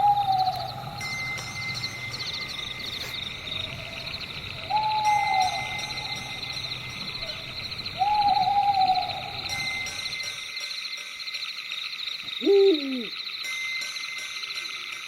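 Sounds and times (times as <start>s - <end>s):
owl hooting: 0.0s - 1.0s, 3.5s - 9.9s, 12.4s - 13.2s.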